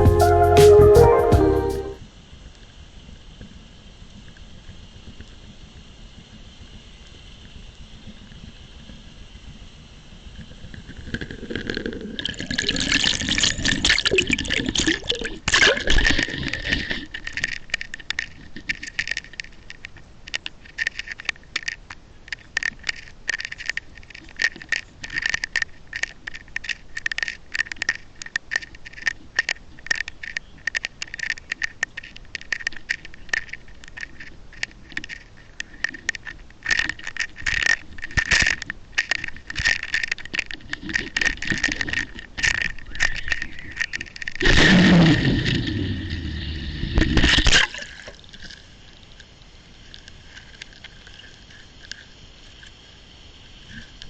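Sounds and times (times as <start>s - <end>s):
irregular clicks and rattles: 11.1s - 44.4s
rush of water: 44.4s - 49.2s.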